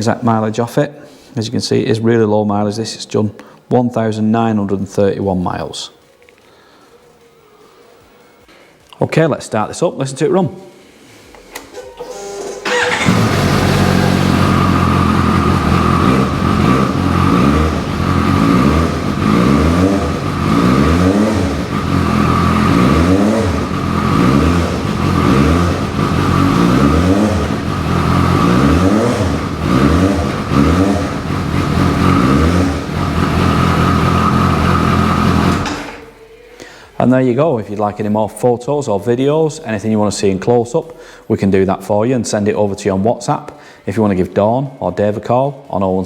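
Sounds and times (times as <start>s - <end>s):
motorcycle engine idling and revving: 12.6s - 35.9s.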